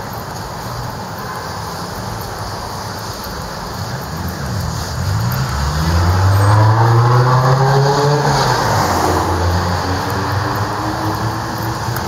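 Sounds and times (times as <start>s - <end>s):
street traffic noise: 0.0s - 12.0s
vehicle engine accelerating past: 4.4s - 12.0s.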